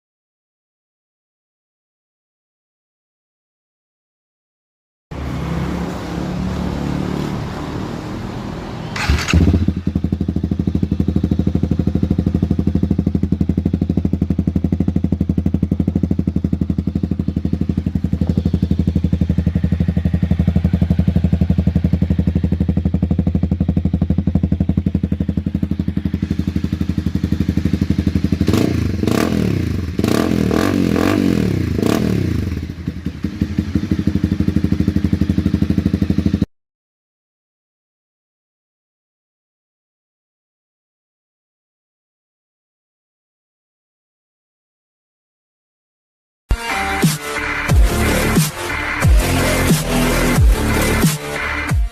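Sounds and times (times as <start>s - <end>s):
motorcycle engine idling and revving: 5.1s - 36.5s, 46.5s - 51.9s.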